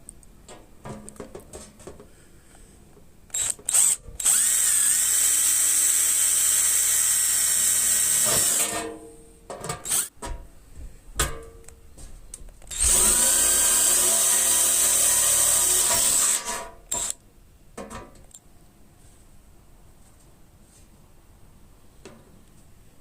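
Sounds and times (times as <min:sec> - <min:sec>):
electric power tool running: 0:03.3 - 0:08.8, 0:09.8 - 0:10.1, 0:12.7 - 0:17.1.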